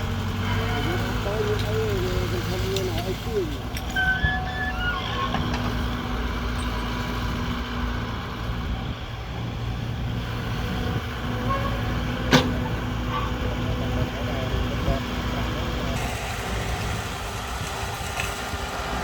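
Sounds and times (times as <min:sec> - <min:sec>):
engine running with low rumble: 0:00.0 - 0:19.0.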